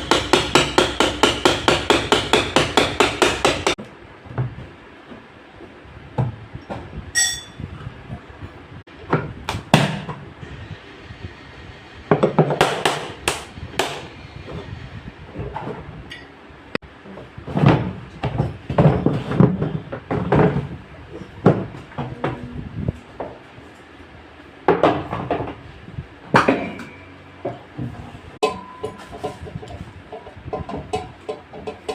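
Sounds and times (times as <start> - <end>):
metal knocks and clattering: 17.0 - 22.5, 26.3 - 31.9.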